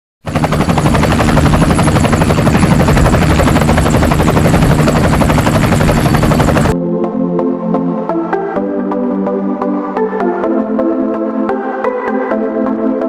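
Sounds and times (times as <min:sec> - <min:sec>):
helicopter rotor chopping: 0:00.2 - 0:06.8.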